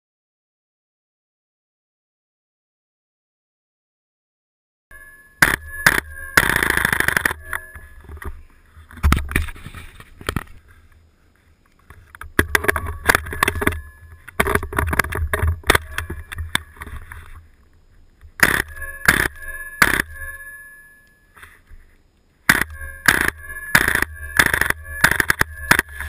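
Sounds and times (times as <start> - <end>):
airsoft rifle firing: 5.4 - 7.4, 18.4 - 20.2, 22.5 - 26.0.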